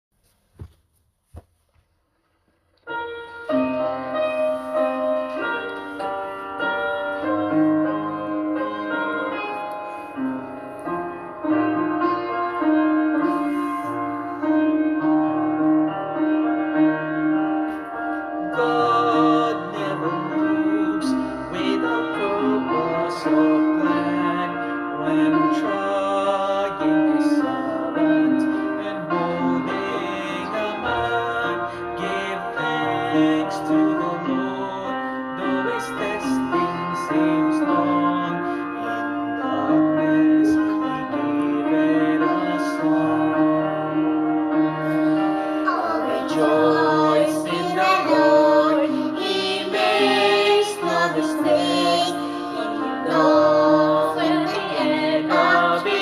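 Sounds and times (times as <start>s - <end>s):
piano playing: 2.8s - 56.0s
person singing with vibrato: 17.7s - 56.0s.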